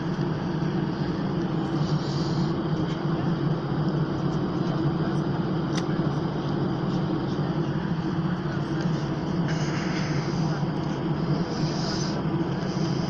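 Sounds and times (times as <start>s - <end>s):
airliner cabin hum: 0.0s - 13.0s.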